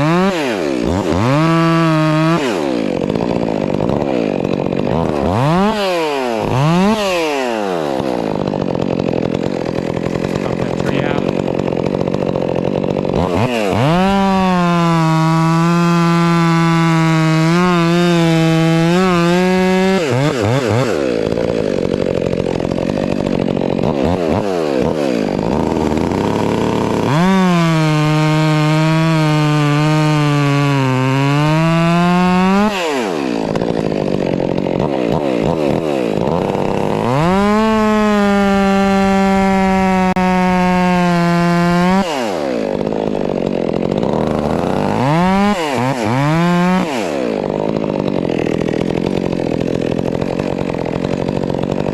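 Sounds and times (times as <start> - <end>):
chainsaw cutting through log: 0.0 - 51.9.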